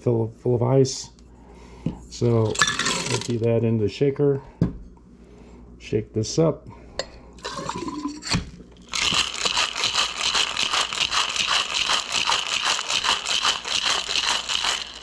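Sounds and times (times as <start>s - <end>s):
ice clinking into shaker: 2.4s - 3.4s, 8.9s - 15.0s
ice rattling in shaken shaker: 2.4s - 3.4s, 8.8s - 15.0s.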